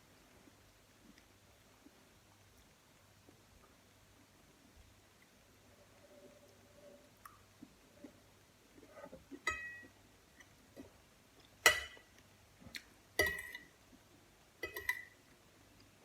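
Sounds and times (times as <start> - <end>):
tableware clinking: 9.4 - 9.9, 11.6 - 12.1, 13.2 - 13.7, 14.6 - 15.2.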